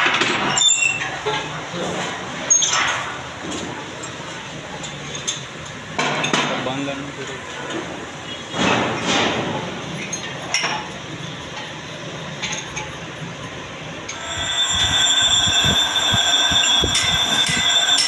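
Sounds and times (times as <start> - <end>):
lathe tool squealing on steel: 14.1 - 18.0.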